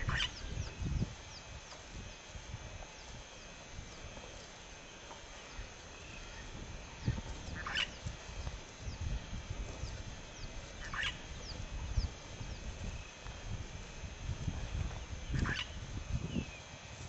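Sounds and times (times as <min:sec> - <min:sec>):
harsh chattering bird call: 0:00.0 - 0:01.5, 0:05.4 - 0:08.2, 0:09.8 - 0:12.7, 0:15.2 - 0:15.8
high falling bird chirp: 0:00.0 - 0:02.3, 0:02.9 - 0:13.2.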